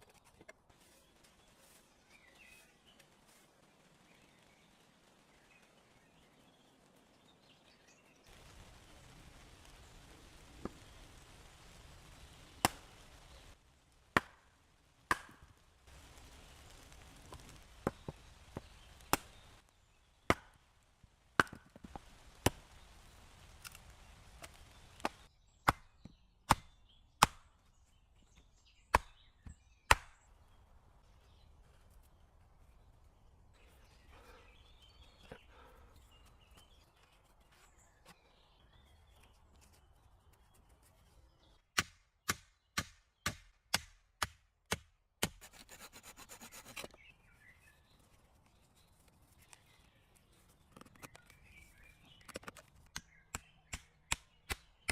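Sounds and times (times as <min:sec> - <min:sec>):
axe chopping wood: 0:14.2 - 0:14.4, 0:15.1 - 0:15.4, 0:20.3 - 0:20.6, 0:21.4 - 0:22.6, 0:25.0 - 0:27.5, 0:28.9 - 0:29.2, 0:29.9 - 0:30.2, 0:41.8 - 0:45.4.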